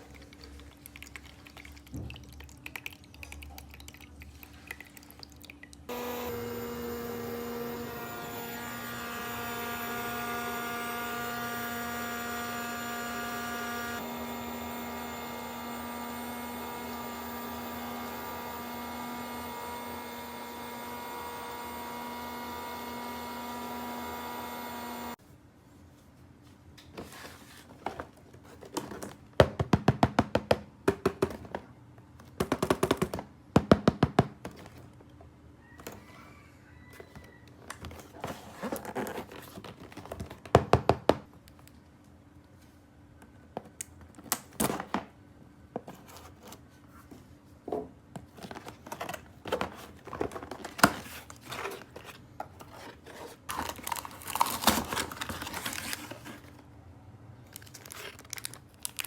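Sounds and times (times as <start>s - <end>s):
plastic packaging crinkling: 50.0s - 56.6s, 57.5s - 59.0s.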